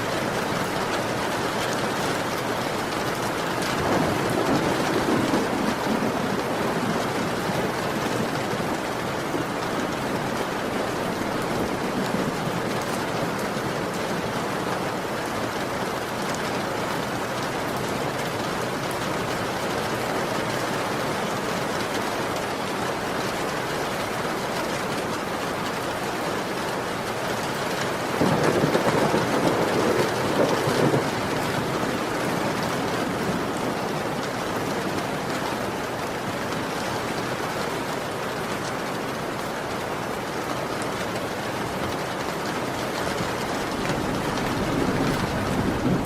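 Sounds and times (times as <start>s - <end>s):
heavy rain falling: 0.0s - 46.0s
thunder rolling: 3.6s - 13.4s, 28.2s - 34.0s, 43.0s - 46.0s.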